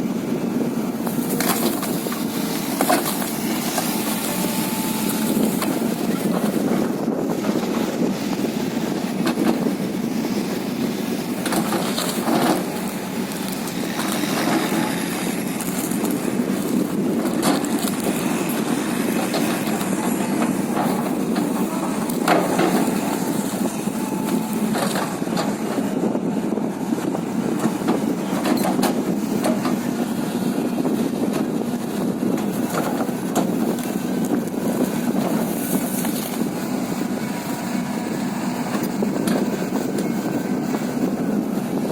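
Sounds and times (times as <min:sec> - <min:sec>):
excavator engine running: 0:00.0 - 0:41.9
wood crushing and cracking: 0:01.0 - 0:06.6, 0:11.2 - 0:25.8, 0:32.4 - 0:36.8.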